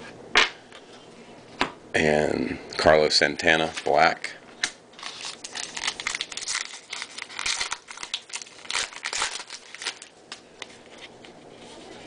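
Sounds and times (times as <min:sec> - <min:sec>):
card pack wrapper crinkling: 0:05.0 - 0:11.2.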